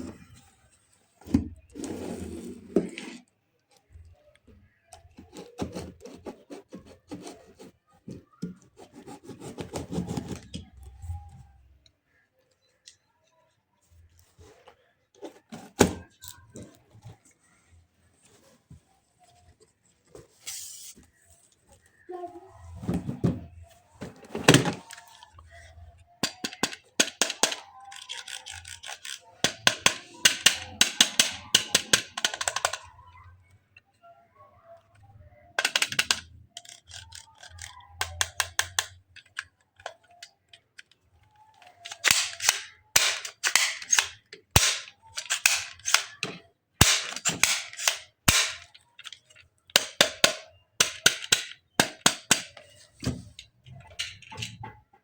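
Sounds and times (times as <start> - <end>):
toy gun electronic shot sounds: 42.0 - 46.2, 46.8 - 48.7.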